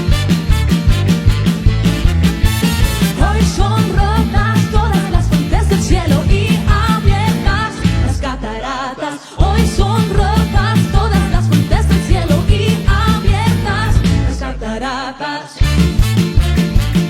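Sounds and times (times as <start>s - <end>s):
worship band music: 0.0s - 8.6s, 9.4s - 14.8s, 15.6s - 17.0s.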